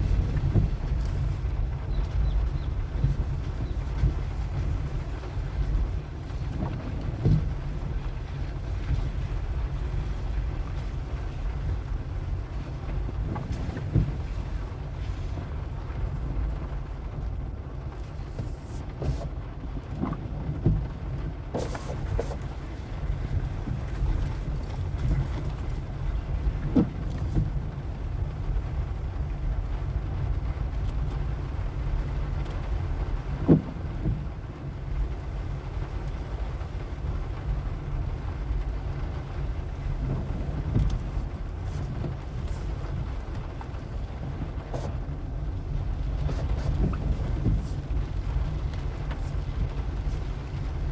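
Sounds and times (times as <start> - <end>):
knocks and rattles from bumps: 0.0 - 8.1, 12.9 - 14.6, 18.0 - 27.8, 33.3 - 34.4
car engine and road rumble: 0.0 - 50.9
car knocks: 6.4 - 7.7, 13.3 - 14.4, 33.4 - 34.4.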